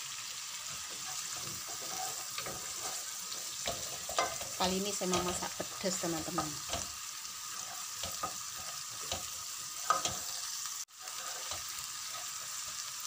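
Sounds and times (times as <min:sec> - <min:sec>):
food sizzling in hot oil: 0:00.0 - 0:13.0
wooden spatula scraping and tapping pan: 0:00.7 - 0:10.4, 0:11.1 - 0:12.8.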